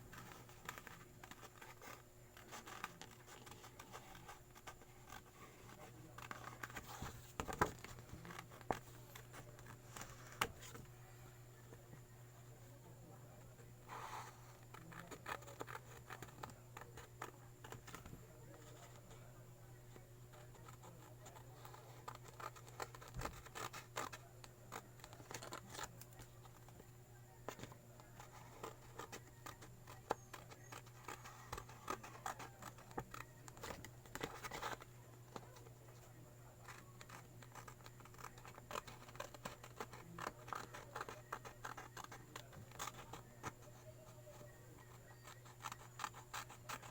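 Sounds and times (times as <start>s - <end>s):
steady low hum: 0.0s - 46.9s
paper being cut by hand: 20.4s - 26.3s, 27.4s - 34.8s, 35.4s - 46.9s.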